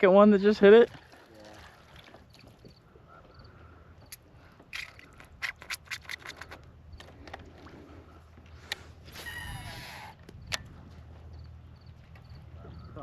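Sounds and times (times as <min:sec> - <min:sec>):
light clicks and scrapes: 0:04.0 - 0:11.1.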